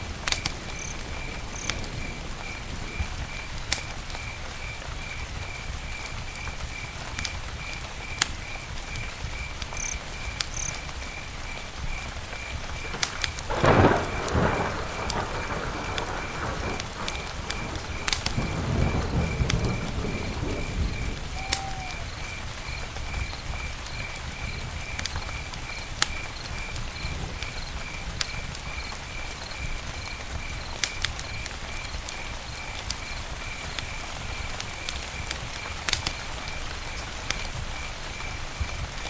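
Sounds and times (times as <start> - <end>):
campfire crackling: 0.0 - 39.0.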